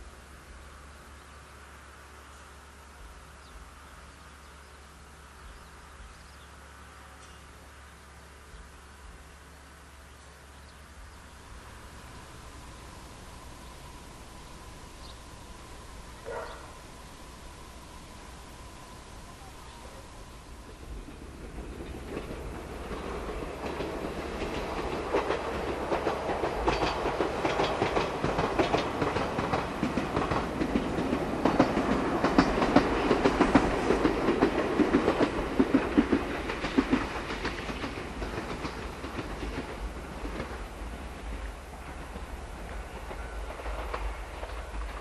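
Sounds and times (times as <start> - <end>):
electric train passing: 0.0 - 45.0
wheels clacking over rail joints: 11.2 - 45.0.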